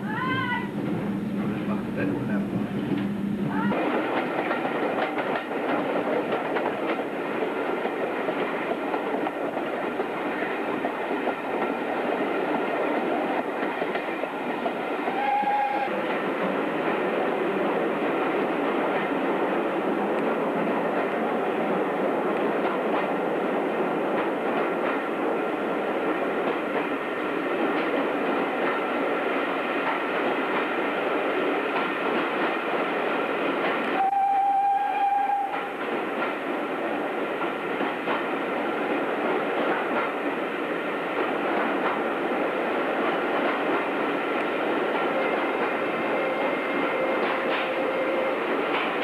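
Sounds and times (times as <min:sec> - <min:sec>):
train wheels rumbling on track: 0:00.0 - 0:49.0
train whistle: 0:15.0 - 0:16.0, 0:33.9 - 0:35.7, 0:45.2 - 0:48.5.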